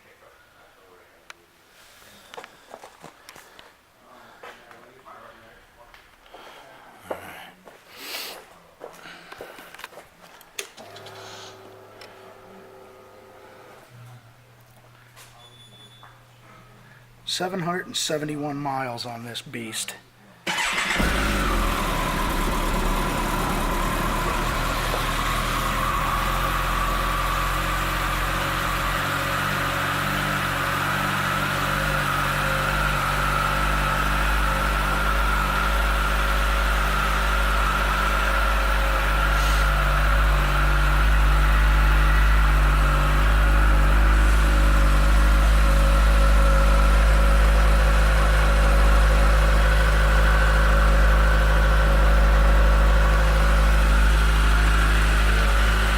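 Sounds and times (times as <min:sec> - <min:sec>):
motorcycle engine idling: 0:20.5 - 0:55.9.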